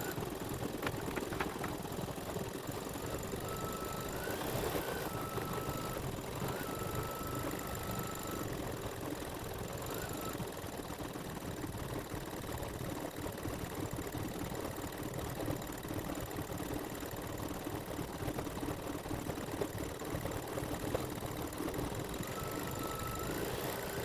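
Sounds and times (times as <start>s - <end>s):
faint high whine: 21.7s - 24.0s.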